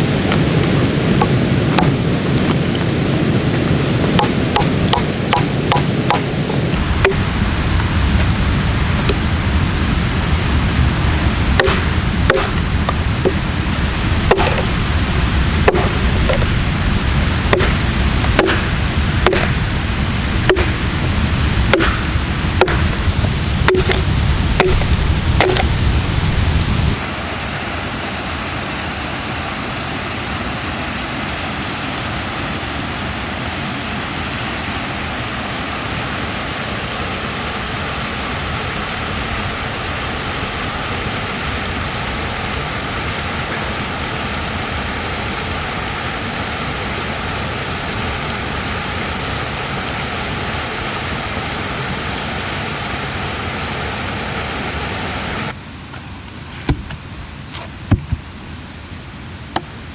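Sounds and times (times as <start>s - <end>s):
low rumble: 0.0s - 27.0s
steady rushing noise: 0.0s - 58.9s
axe chopping into a log: 4.1s - 6.4s, 11.6s - 12.6s, 14.3s - 14.7s, 15.7s - 16.5s, 17.5s - 19.6s, 20.5s - 20.8s, 21.7s - 22.9s, 23.7s - 25.7s.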